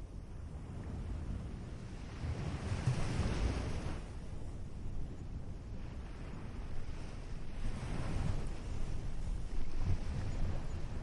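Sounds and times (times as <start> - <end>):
wind buffeting microphone: 0.0 - 11.0
ocean surf washing on beach: 1.0 - 4.2, 5.8 - 11.0.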